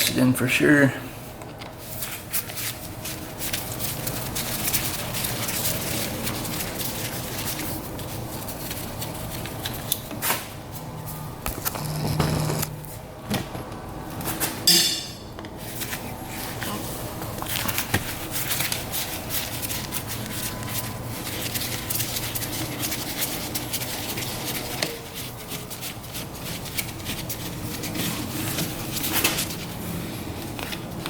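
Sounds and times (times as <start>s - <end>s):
hand tools clinking on metal parts: 14.7s - 15.2s.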